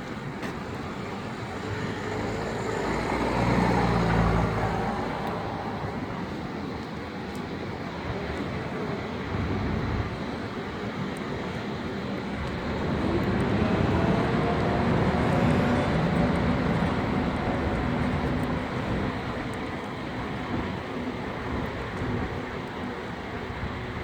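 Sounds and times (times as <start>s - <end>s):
motor droning: 12.4s - 19.8s.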